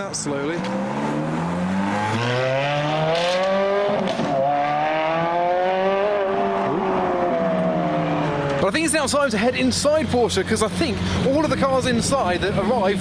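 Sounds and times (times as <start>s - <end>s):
car engine accelerating hard: 0.4s - 8.7s.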